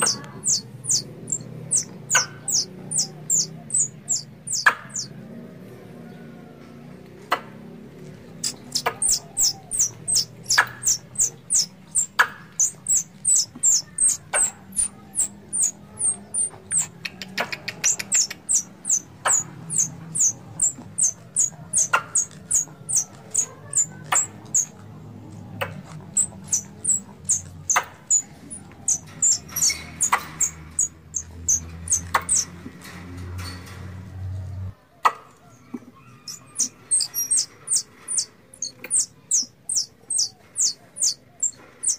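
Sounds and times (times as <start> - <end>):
sharp high squirrel calls: 0.0 - 5.1, 8.4 - 16.9, 17.8 - 24.7, 26.1 - 32.5, 36.2 - 41.9.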